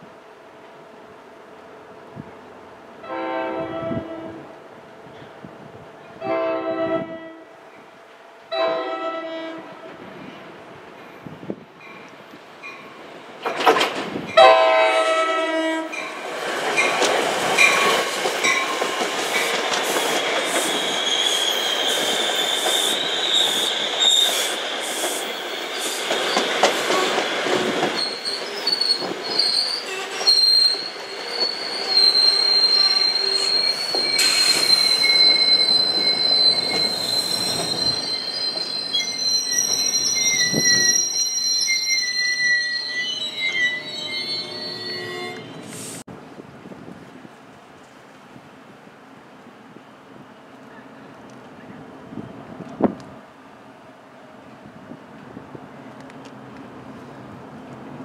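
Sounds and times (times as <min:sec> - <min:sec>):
train horn blast: 0:03.0 - 0:04.5, 0:06.2 - 0:07.6, 0:08.5 - 0:10.1, 0:14.4 - 0:16.0
train wheel clatter: 0:11.9 - 0:14.4, 0:15.9 - 0:41.2
high-pitched wheel squeal: 0:27.9 - 0:46.0.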